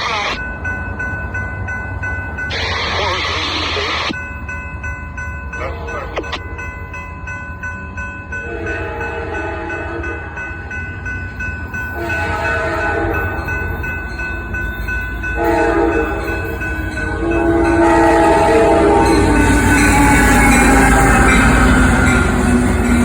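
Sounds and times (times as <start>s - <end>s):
train rumbling: 0.0s - 23.0s
locomotive air horn: 8.4s - 10.2s, 12.0s - 13.5s, 15.4s - 16.4s, 17.0s - 19.4s.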